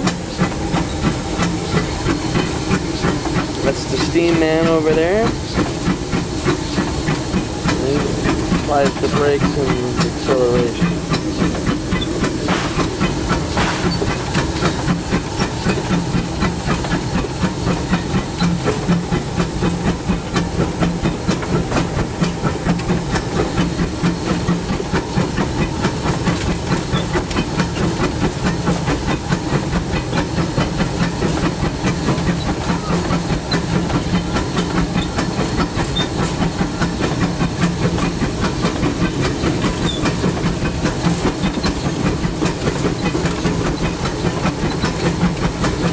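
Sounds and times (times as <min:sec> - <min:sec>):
steam hissing: 0:00.0 - 0:45.9
steam locomotive rhythmic beat: 0:00.0 - 0:45.9
train rolling on rails: 0:00.0 - 0:45.9.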